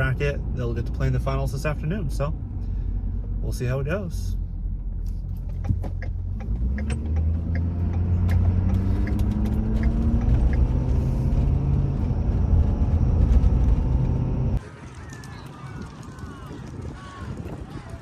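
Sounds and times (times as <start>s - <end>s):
road noise inside car: 0.0s - 14.6s
car engine accelerating: 4.6s - 14.6s.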